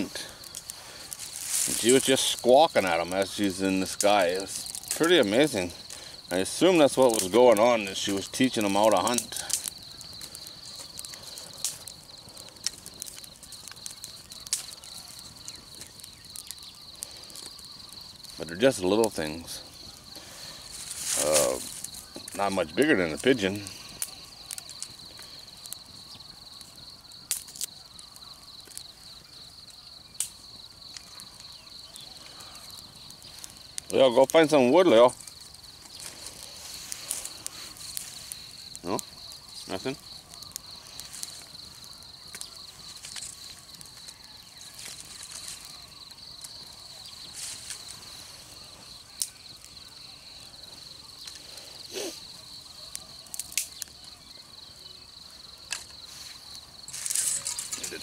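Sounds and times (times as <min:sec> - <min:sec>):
high pulsed insect trill: 0:00.0 - 0:58.0
sharp clicks: 0:52.9 - 0:53.9.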